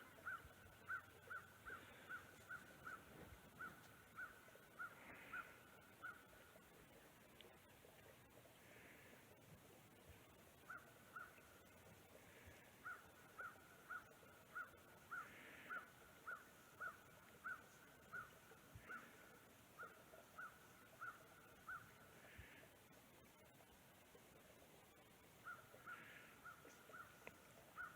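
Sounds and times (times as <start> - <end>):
faint bird calling: 0.0 - 6.6, 10.6 - 22.7, 25.4 - 27.9.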